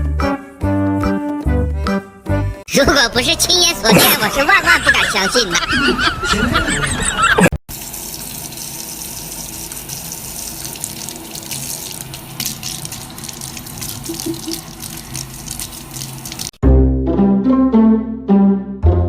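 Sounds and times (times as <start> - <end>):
water running with splashes: 7.7 - 16.6.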